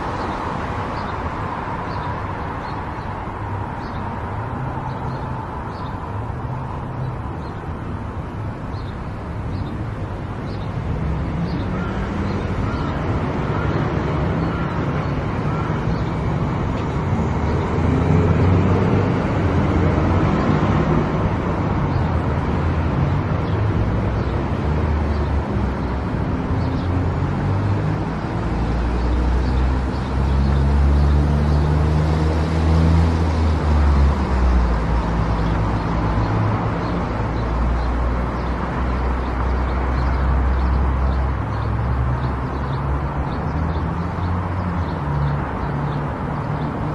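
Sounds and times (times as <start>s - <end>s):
tyre and road noise: 0.0s - 46.9s.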